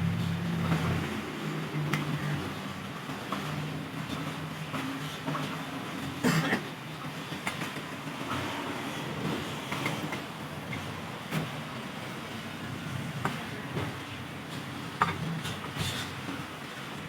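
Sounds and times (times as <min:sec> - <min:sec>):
steady low hum: 0:00.0 - 0:01.2.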